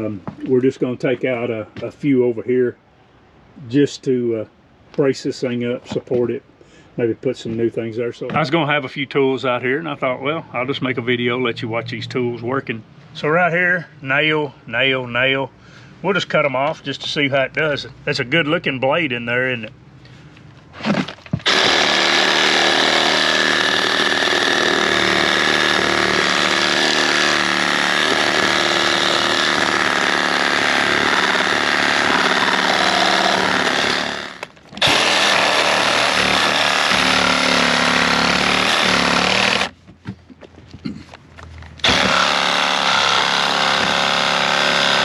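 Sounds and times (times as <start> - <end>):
reciprocating saw cutting nails: 21.4 - 39.7, 41.8 - 45.0.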